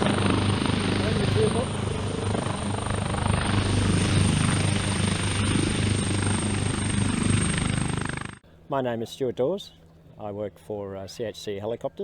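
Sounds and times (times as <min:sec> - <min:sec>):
high-pitched turbine whine: 0:00.0 - 0:08.4
helicopter engines and rotor: 0:00.0 - 0:08.6.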